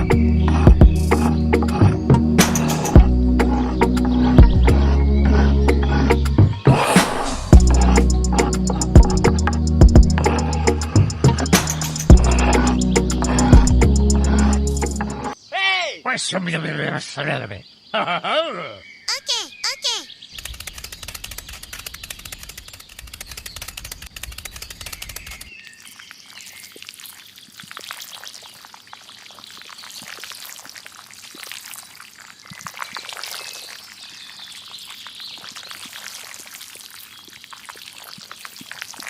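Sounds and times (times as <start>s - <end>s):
low hum: 0.0s - 15.4s
fast even ticking: 7.6s - 15.1s, 20.4s - 25.5s
small water splashes: 20.4s - 39.0s
water pouring and trickling: 20.4s - 39.0s.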